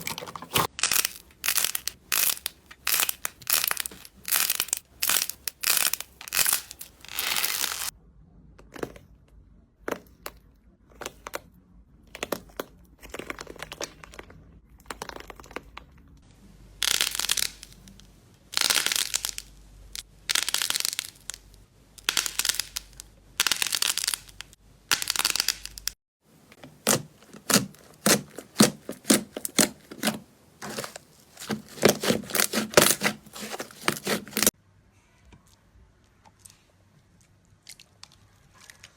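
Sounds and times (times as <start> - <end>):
hands squishing slime: 26.6 - 34.5.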